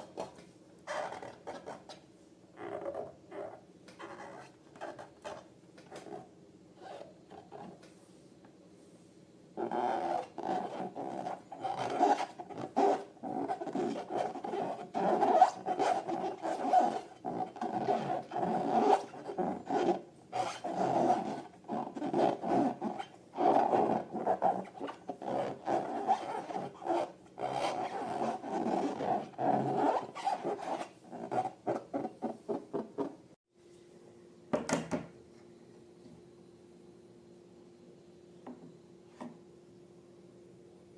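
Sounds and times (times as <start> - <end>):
squeaky rubbing of slime and balloons: 0.0 - 2.0, 2.6 - 7.7, 9.6 - 33.2.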